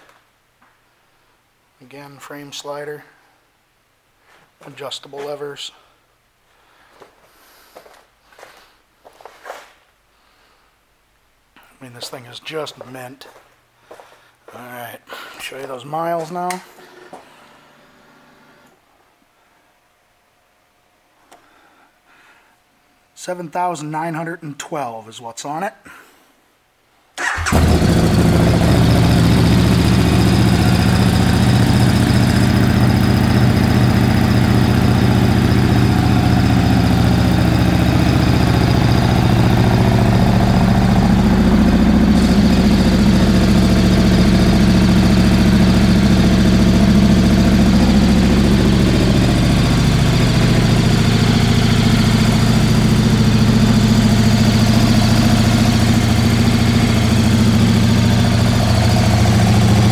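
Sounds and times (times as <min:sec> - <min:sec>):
motorcycle engine idling: 0:27.2 - 0:59.9.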